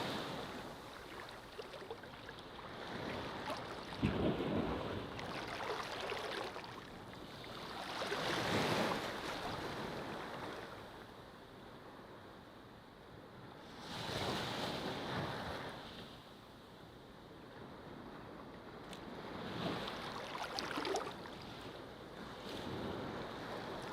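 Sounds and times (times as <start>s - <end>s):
ocean waves breaking on beach: 0.0s - 11.0s, 19.0s - 23.9s.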